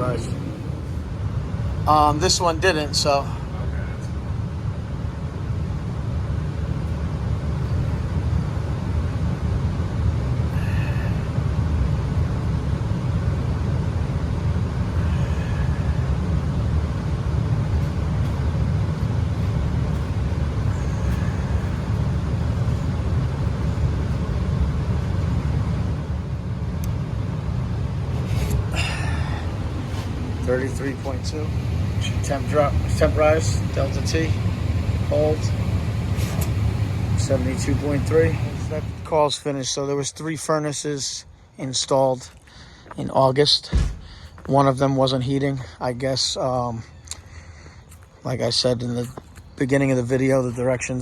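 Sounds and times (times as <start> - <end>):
furnace blower rumble: 0.0 - 40.2.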